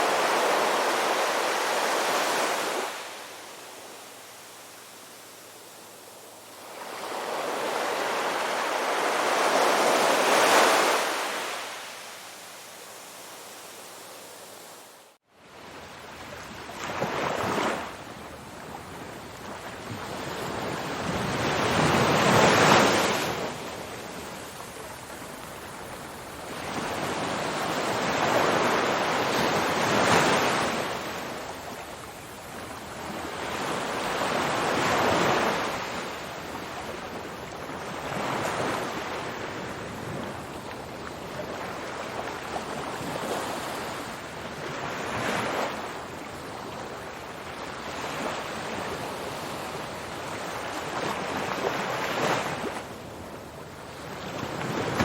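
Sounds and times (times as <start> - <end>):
ocean waves washing in: 0.0 - 15.2.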